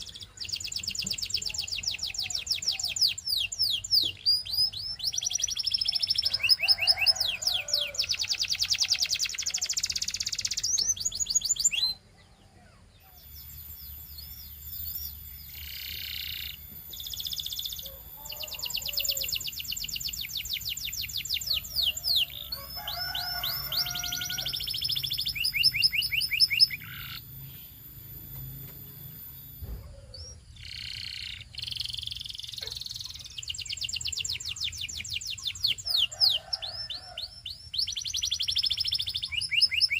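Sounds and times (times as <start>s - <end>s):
canary singing: 0.0s - 39.9s
faint high-pitched whine: 9.2s - 35.0s.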